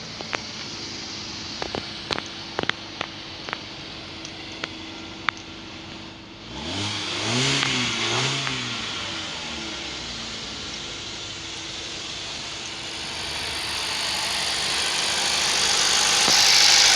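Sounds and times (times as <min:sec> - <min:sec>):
car engine starting and revving: 0:06.4 - 0:16.9.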